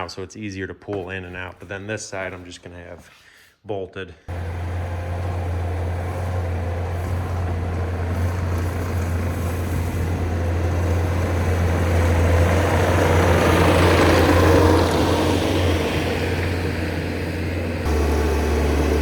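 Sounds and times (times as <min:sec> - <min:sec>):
skid steer engine humming: 0:04.3 - 0:19.0.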